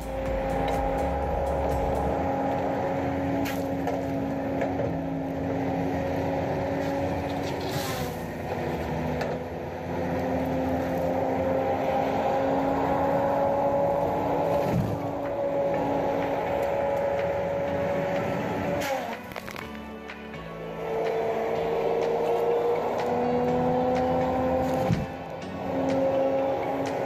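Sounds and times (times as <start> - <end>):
diesel engine at high revs: 0.0 - 19.6, 20.4 - 27.0.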